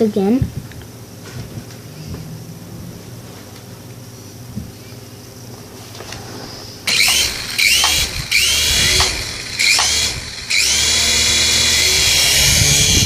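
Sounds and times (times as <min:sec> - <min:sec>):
toy helicopter motor whining: 0:06.9 - 0:13.0.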